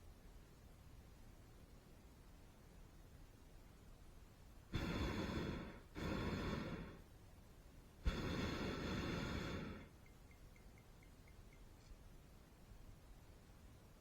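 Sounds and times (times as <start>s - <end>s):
propane burner roaring: 4.8s - 7.0s, 8.0s - 9.9s.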